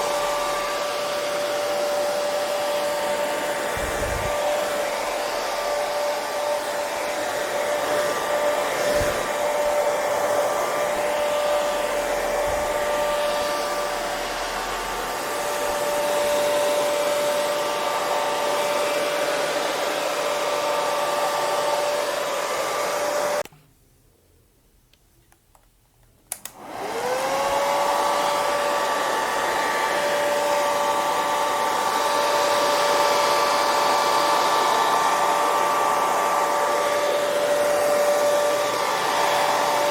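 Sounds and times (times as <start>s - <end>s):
hair dryer running: 0.0s - 23.5s, 26.3s - 39.9s
hair dryer switch click: 24.9s - 26.8s.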